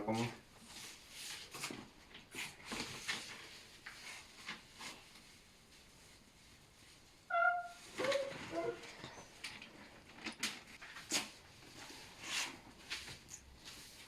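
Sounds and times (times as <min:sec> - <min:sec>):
tinsel crinkling and rustling: 0:00.6 - 0:14.0.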